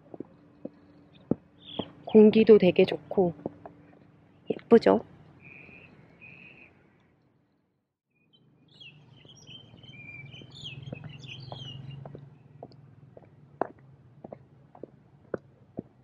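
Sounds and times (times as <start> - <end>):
songbirds chirping and trilling: 0.1 - 2.5, 3.3 - 7.1, 8.1 - 13.4.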